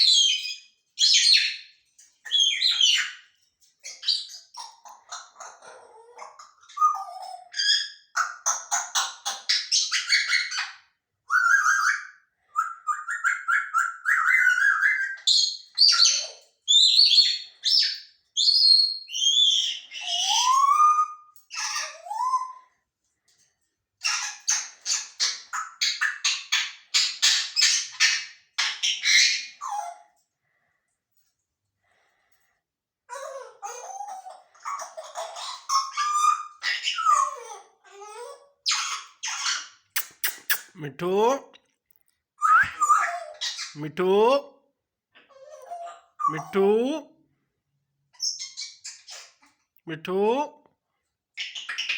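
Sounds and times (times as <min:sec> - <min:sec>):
parrot chattering and whistling: 0:03.9 - 0:22.7, 0:33.1 - 0:41.4, 0:42.4 - 0:44.4.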